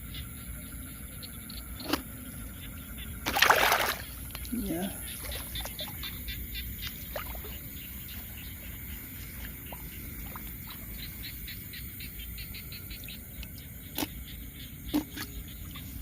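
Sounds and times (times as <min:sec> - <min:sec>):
frogs calling: 0:00.0 - 0:16.0
insect drone: 0:00.0 - 0:16.0.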